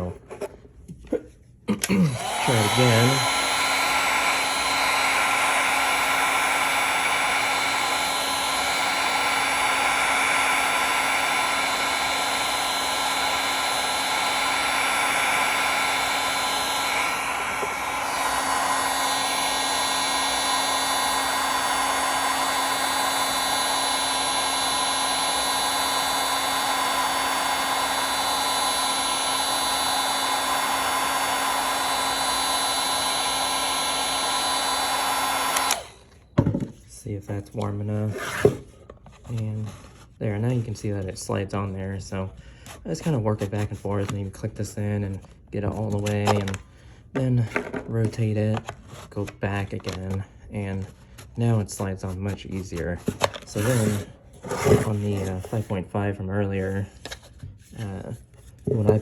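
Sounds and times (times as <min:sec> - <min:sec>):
heat gun running: 0:01.8 - 0:36.2, 0:53.3 - 0:55.7.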